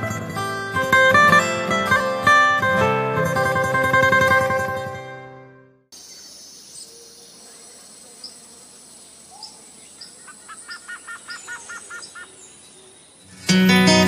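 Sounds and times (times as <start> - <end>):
background hiss: 5.9 - 13.6.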